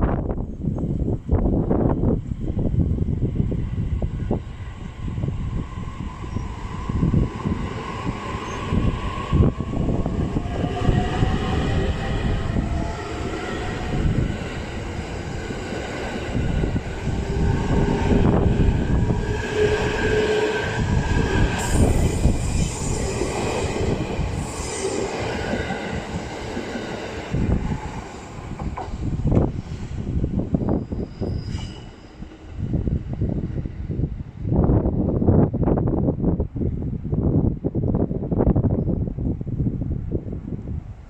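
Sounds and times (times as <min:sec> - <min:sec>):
train wheels rumbling on rails: 0:00.0 - 0:36.0
high squealing and whining: 0:05.6 - 0:26.3, 0:30.7 - 0:32.4.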